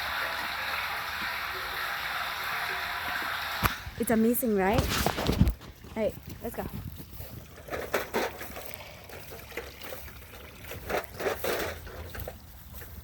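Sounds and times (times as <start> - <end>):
creek water trickling over rocks: 0.0 - 13.0.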